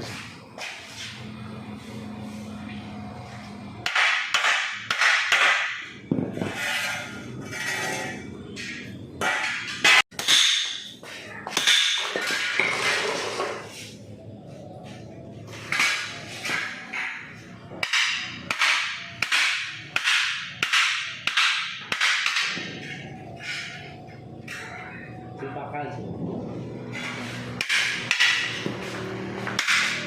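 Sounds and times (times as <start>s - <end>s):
hammer striking car body metal: 3.8s - 6.4s, 8.6s - 10.9s, 17.8s - 22.9s, 27.6s - 28.7s, 29.4s - 30.0s.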